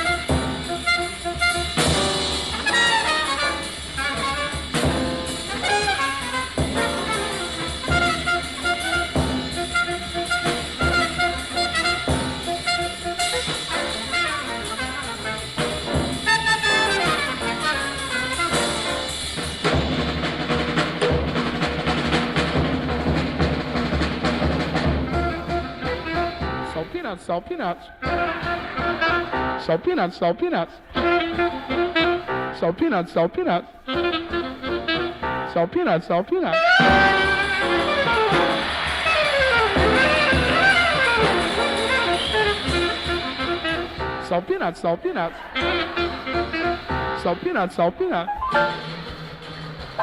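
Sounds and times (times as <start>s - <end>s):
alto saxophone: 0.0s - 19.7s, 24.8s - 26.8s, 28.0s - 29.7s, 30.8s - 32.7s, 33.8s - 35.6s, 36.5s - 44.3s, 45.5s - 47.4s, 48.5s - 50.0s
bass: 0.0s - 26.8s, 36.7s - 44.3s
drums: 0.0s - 27.0s, 28.0s - 29.7s, 30.9s - 32.6s, 33.8s - 35.5s, 36.5s - 44.4s, 45.4s - 50.0s
piano: 0.0s - 27.0s, 28.0s - 30.0s, 30.9s - 33.2s, 33.8s - 35.7s, 36.5s - 50.0s
trumpet: 0.0s - 50.0s.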